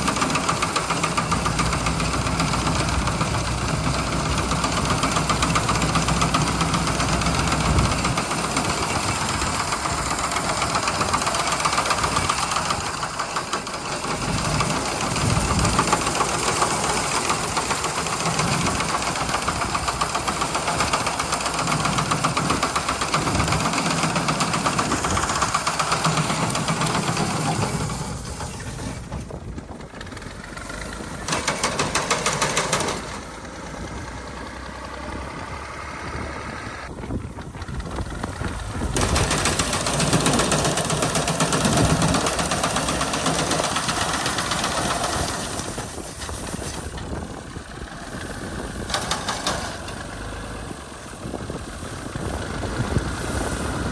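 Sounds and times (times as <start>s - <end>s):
diesel tractor engine running: 0.0s - 53.9s
reaper machine running: 0.0s - 53.9s.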